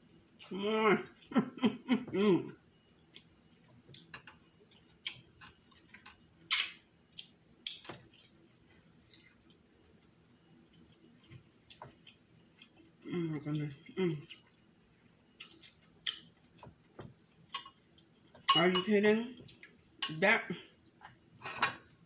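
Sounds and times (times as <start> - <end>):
person chewing: 2.5 - 14.7, 15.3 - 18.4.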